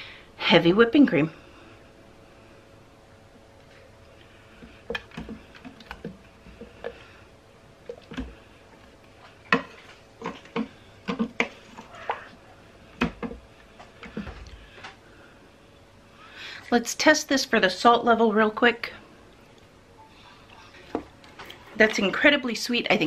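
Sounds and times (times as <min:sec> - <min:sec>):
wooden spoon stirring thick soup: 0:04.1 - 0:15.0.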